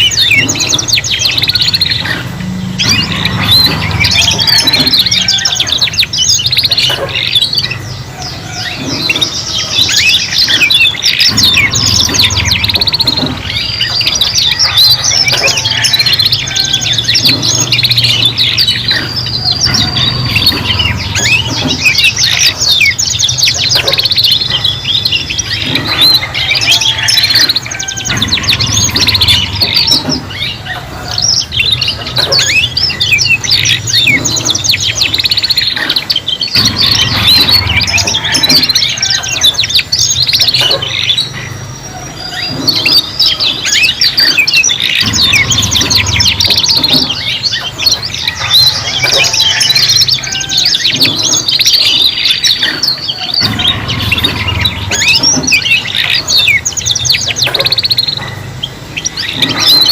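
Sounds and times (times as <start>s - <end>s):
canaries singing: 0.0s - 59.9s.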